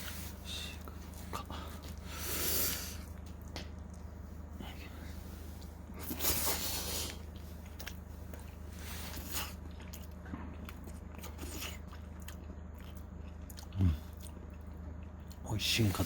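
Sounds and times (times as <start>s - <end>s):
low hum: 0.0s - 16.0s
chewing crunchy chicken: 5.6s - 16.0s.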